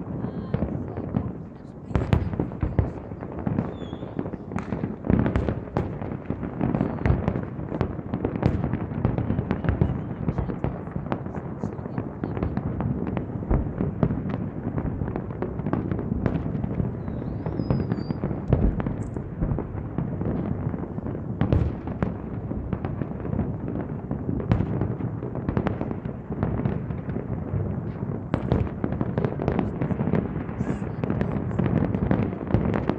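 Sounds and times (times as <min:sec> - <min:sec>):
fireworks bangs and crackles: 0:00.0 - 0:32.9.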